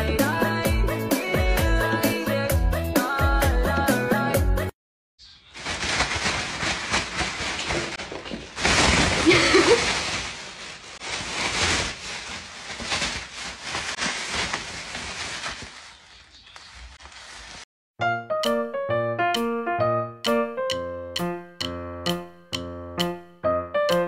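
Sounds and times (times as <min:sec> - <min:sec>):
plastic bag crinkling: 0:05.4 - 0:17.7.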